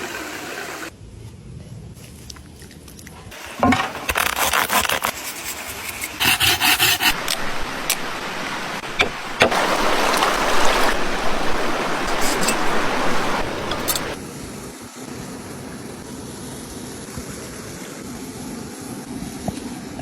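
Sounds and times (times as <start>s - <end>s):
scraping and rubbing: 3.6s - 8.1s, 12.0s - 14.2s
sharp clicks and knocks: 8.9s - 9.6s.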